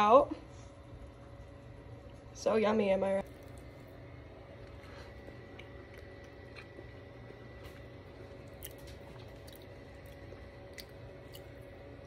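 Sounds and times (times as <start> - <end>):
steady low hum: 0.0 - 12.0
chewing food with mouth clicks: 3.2 - 3.9, 4.6 - 12.0.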